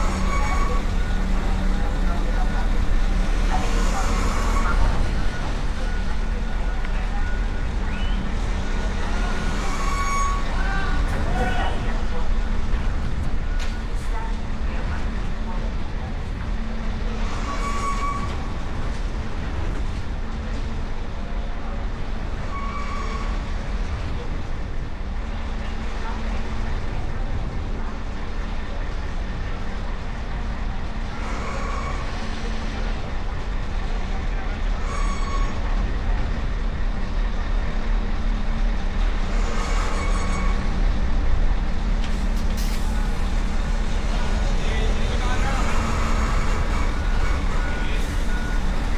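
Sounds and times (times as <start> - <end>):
heavy vehicle engines rumbling: 0.0 - 48.9
traffic rumble: 40.6 - 48.9.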